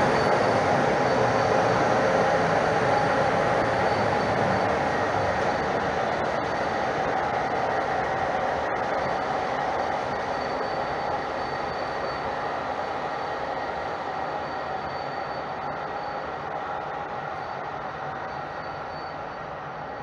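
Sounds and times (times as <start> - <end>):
faint high whine: 0.0 - 7.2, 8.6 - 20.0
passenger train passing: 0.0 - 10.2.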